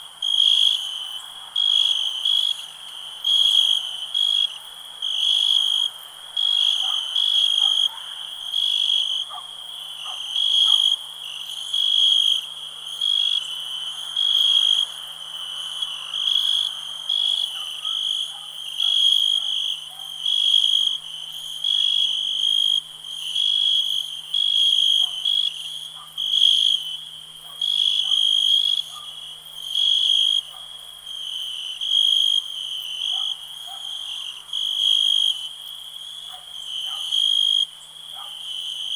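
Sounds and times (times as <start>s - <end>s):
crickets trilling: 0.0s - 38.9s
lower short insect calls: 0.2s - 30.5s.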